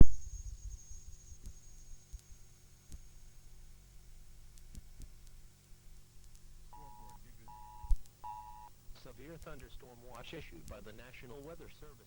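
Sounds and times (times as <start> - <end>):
low electrical hum: 0.0 - 12.0
thin high whine: 4.8 - 12.0.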